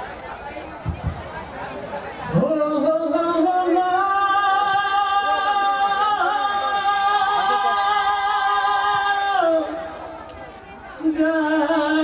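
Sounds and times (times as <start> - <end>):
men singing unaccompanied chant: 2.3 - 10.1, 11.0 - 12.0.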